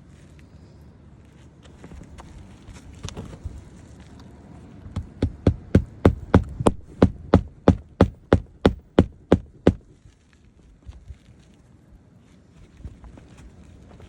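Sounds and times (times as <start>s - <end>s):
hammer driving nails: 5.0s - 9.9s.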